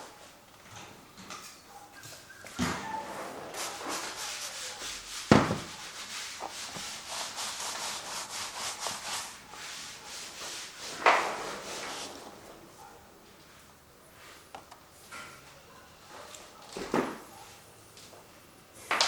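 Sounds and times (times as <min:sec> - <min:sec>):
paintbrush scrubbing canvas: 0:03.1 - 0:12.3
sharp knock: 0:05.3 - 0:05.7.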